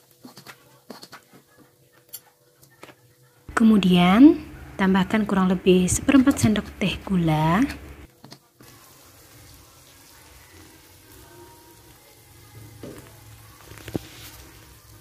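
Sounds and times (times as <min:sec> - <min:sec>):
sambal sizzling in a wok: 0:05.4 - 0:15.0.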